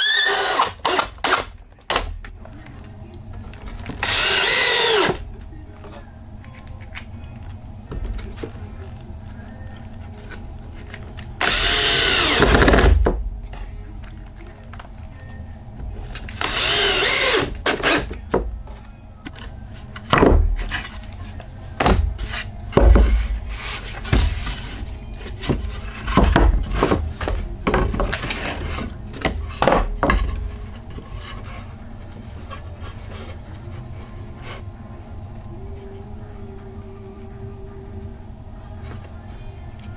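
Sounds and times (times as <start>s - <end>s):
cordless drill running: 0.0s - 1.4s, 4.0s - 5.2s, 11.4s - 12.8s, 16.4s - 17.6s
wood pieces knocking and thudding: 20.0s - 20.9s, 21.8s - 23.4s, 25.3s - 30.5s.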